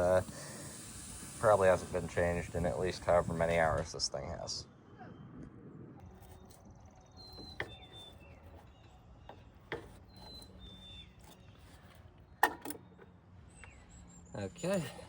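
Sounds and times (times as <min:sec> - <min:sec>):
bird chirps: 0:06.1 - 0:15.0.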